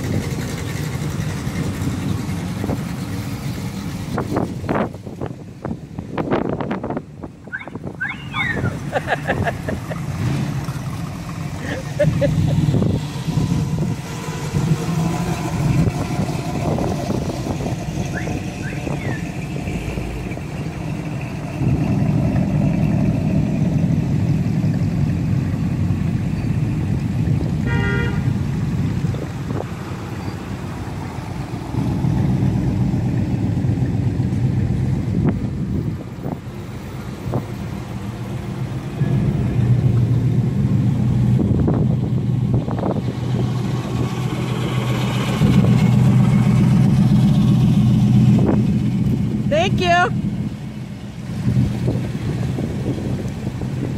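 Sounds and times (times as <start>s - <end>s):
cars driving slowly past: 0.0s - 53.9s
car horn toot: 27.6s - 28.4s.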